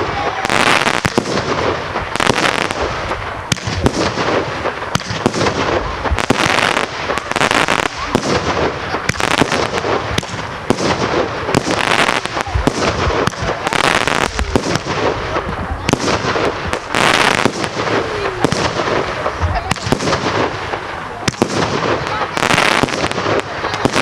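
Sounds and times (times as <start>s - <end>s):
firework hiss: 0.0s - 24.0s
firework pops and crackles: 0.0s - 24.0s.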